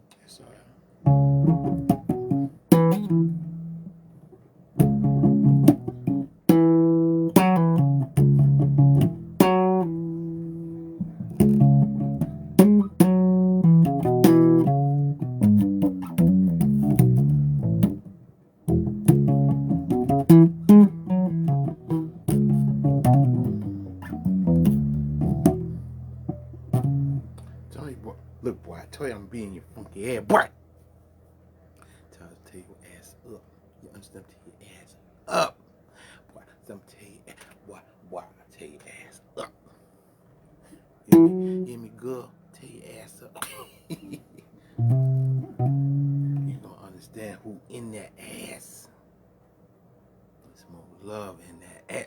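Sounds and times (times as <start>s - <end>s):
bass guitar plucked notes: 1.0s - 4.1s, 4.8s - 30.7s, 41.1s - 42.4s, 44.8s - 46.8s.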